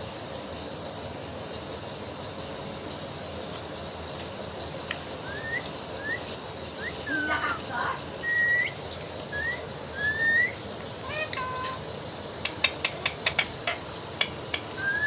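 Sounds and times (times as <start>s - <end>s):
parakeet whistling: 5.2s - 7.4s, 8.2s - 10.6s, 14.8s - 15.0s.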